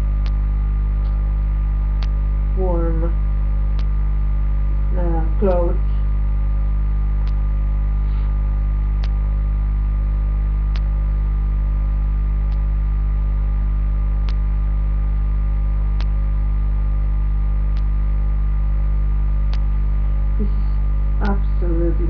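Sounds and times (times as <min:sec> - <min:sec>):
electrical mains hum: 0:00.0 - 0:22.0
faint clicks: 0:09.0 - 0:09.2, 0:12.4 - 0:12.7, 0:14.2 - 0:14.4, 0:16.0 - 0:16.2, 0:17.7 - 0:17.9, 0:19.5 - 0:19.7.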